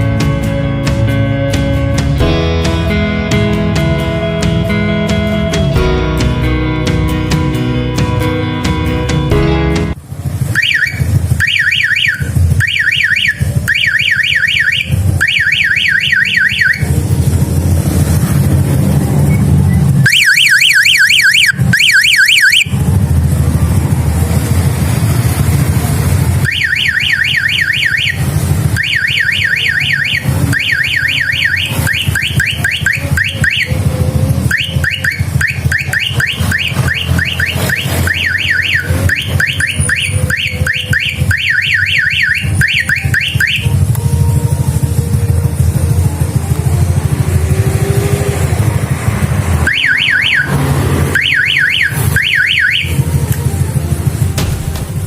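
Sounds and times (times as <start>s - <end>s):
electronic siren yelping: 10.4s - 18.2s, 19.2s - 23.3s, 26.2s - 54.3s.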